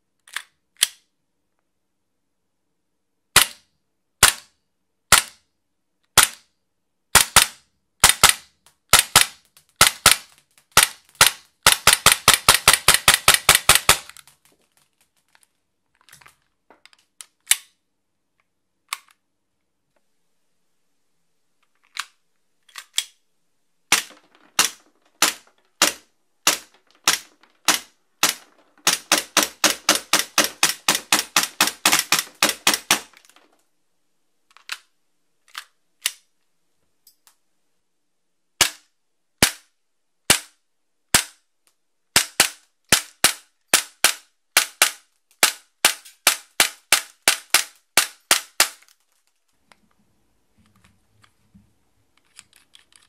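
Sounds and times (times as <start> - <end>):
airsoft pistol firing: 7.2 - 14.2, 23.9 - 33.2.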